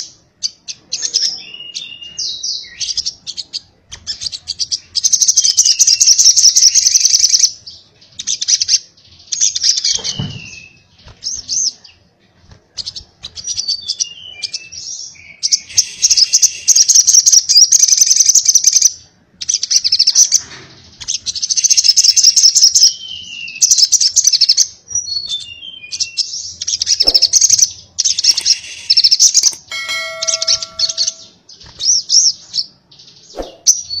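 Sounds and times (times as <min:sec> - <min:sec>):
bird chattering trills: 0:15.5 - 0:17.5, 0:27.0 - 0:31.3
downward-sliding bird whistles: 0:15.6 - 0:17.3, 0:33.3 - 0:34.0.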